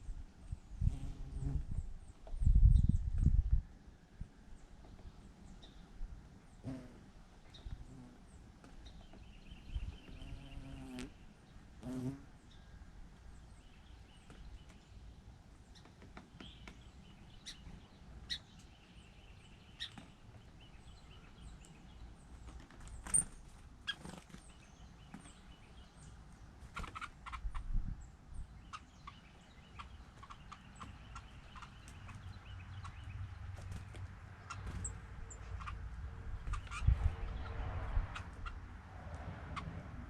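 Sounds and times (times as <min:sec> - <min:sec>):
bird chirps: 0:15.7 - 0:22.2, 0:28.4 - 0:33.7, 0:34.3 - 0:35.8, 0:36.4 - 0:38.6
bird calls: 0:15.7 - 0:27.7, 0:28.4 - 0:38.7.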